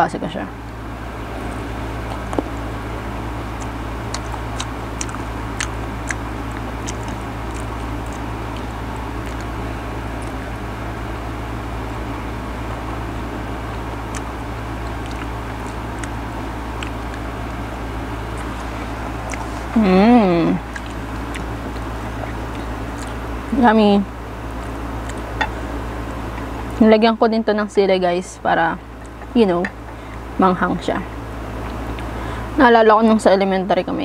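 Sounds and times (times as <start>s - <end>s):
steady low hum: 0.0s - 34.0s
person biting and chewing mango: 1.4s - 19.9s, 20.6s - 23.5s, 24.4s - 26.7s
wet mouth clicks and smacks: 3.6s - 9.6s, 10.2s - 10.5s, 14.1s - 16.2s, 19.2s - 19.7s, 20.6s - 23.2s, 24.6s - 25.5s.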